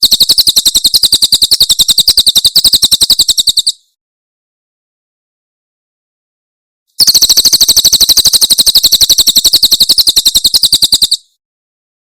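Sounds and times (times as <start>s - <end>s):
songbird rapid high-pitched trill: 0.0s - 3.9s, 7.0s - 11.4s.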